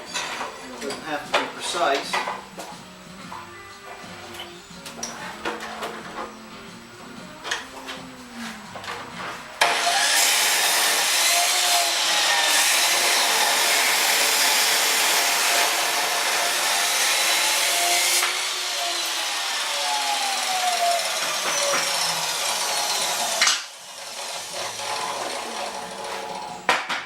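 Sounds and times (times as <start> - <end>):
power saw cutting steel pipe: 9.6 - 26.7.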